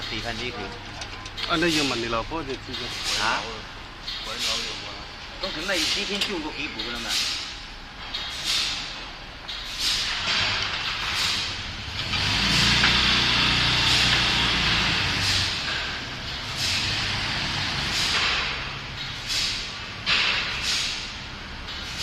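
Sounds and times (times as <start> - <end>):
cross-cut saw machine cutting: 12.0 - 18.8.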